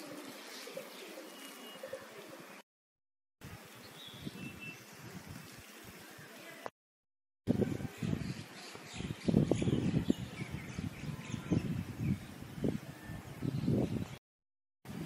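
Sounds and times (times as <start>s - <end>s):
faint outdoor ambience: 0.0s - 2.6s, 3.4s - 6.7s.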